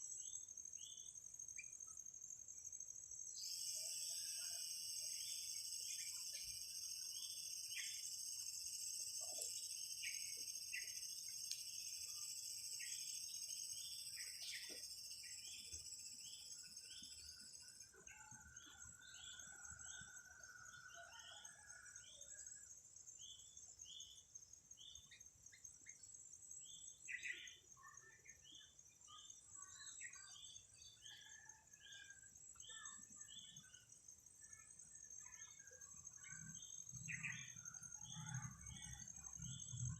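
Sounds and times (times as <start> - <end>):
high insect drone: 0.2 - 17.9.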